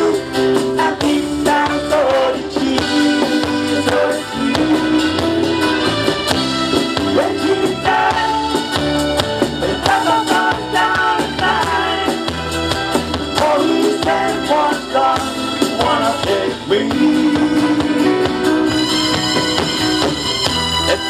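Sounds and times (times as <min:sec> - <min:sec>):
person singing: 0:00.0 - 0:05.7, 0:06.9 - 0:08.8, 0:09.6 - 0:12.3, 0:13.2 - 0:18.6
live band playing: 0:00.0 - 0:21.0
steady drum beat: 0:00.0 - 0:21.0.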